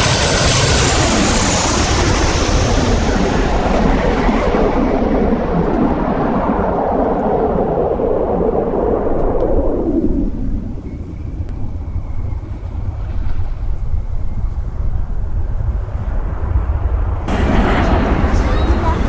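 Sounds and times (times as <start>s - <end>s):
aircraft engine rumble: 0.0s - 19.0s
wind rumble on microphone: 0.0s - 19.0s.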